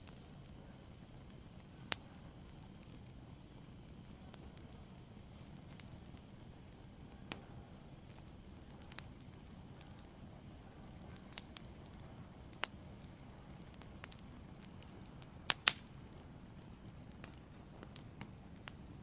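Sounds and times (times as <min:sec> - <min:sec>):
wood fire hissing and crackling: 0:00.0 - 0:19.0.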